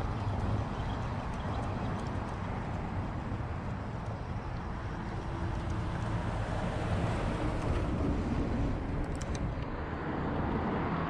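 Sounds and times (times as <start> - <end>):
faint clicks: 0.0 - 6.1, 9.0 - 9.7
road traffic rumble: 0.0 - 11.0.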